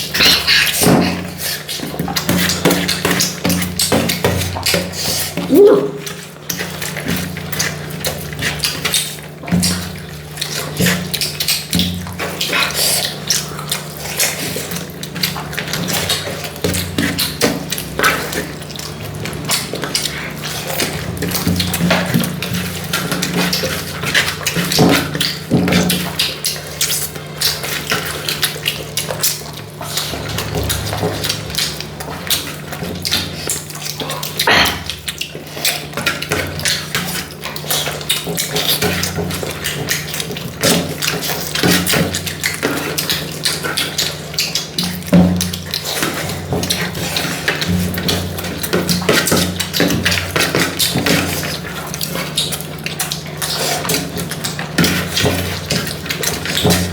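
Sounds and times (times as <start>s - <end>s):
chewing and mouth noises: 0.0s - 56.9s.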